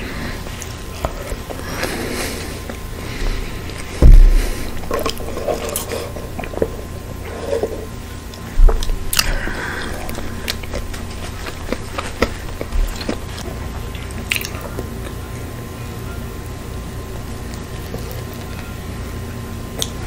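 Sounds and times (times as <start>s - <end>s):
heavy low thumps: 3.2s - 4.9s
chewing and wet mouth clicks: 10.4s - 15.2s, 19.8s - 20.0s.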